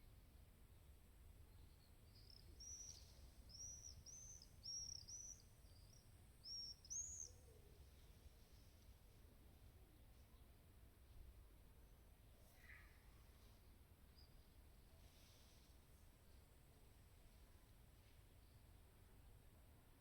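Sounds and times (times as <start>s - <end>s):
songbird chirping: 1.4s - 8.8s.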